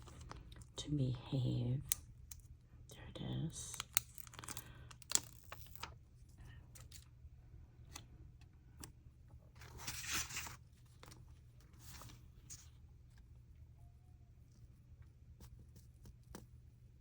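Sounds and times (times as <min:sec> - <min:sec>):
paper rustling: 0:09.6 - 0:13.2.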